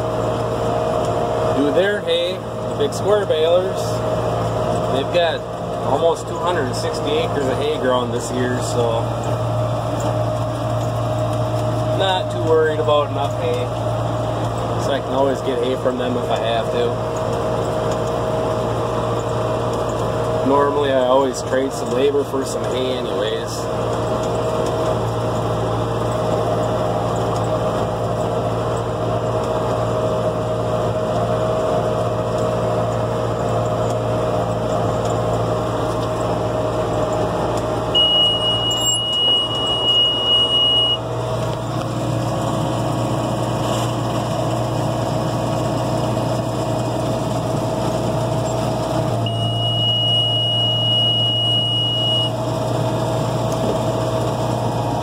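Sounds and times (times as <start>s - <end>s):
tractor diesel engine running: 0.0s - 55.0s
high electronic beep: 38.0s - 41.0s, 49.2s - 52.4s.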